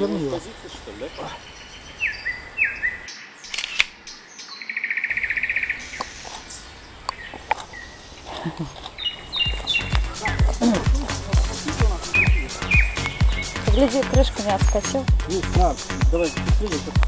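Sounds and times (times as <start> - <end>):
songbirds singing: 0.0 - 17.0
sharp clicks: 3.5 - 4.0.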